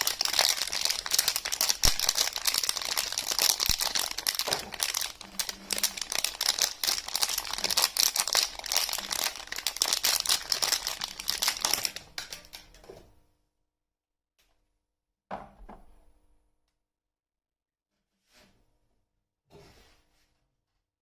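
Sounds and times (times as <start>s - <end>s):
packaging crinkling and tearing: 0.0s - 12.7s.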